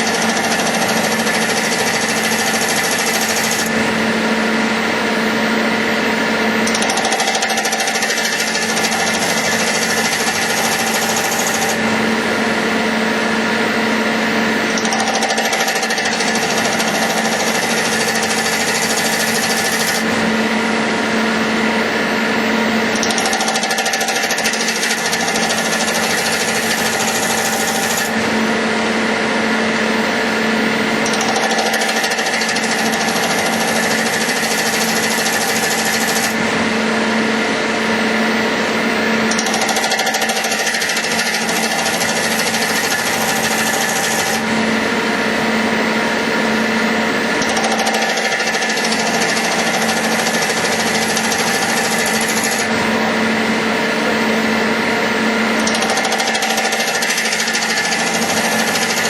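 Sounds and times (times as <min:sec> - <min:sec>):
metal lathe grinding: 0:00.0 - 0:03.8, 0:06.6 - 0:12.6, 0:14.6 - 0:20.2, 0:22.9 - 0:28.4, 0:30.9 - 0:36.6, 0:39.3 - 0:44.7, 0:47.3 - 0:54.5, 0:55.3 - 0:59.0
machine hum: 0:49.4 - 0:56.0.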